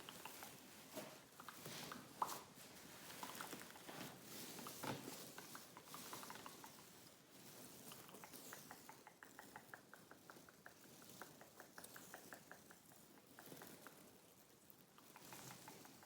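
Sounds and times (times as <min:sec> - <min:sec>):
wet mouth clicks: 0:07.9 - 0:14.0, 0:15.1 - 0:16.0.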